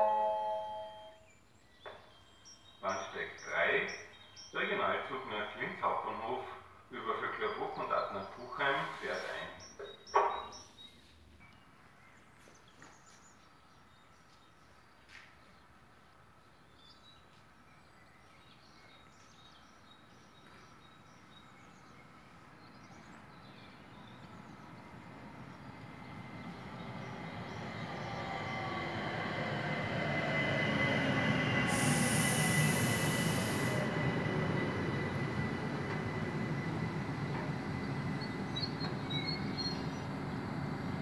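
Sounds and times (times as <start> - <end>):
wheels and brakes squealing: 27.0 - 40.8
air hiss: 31.7 - 34.0.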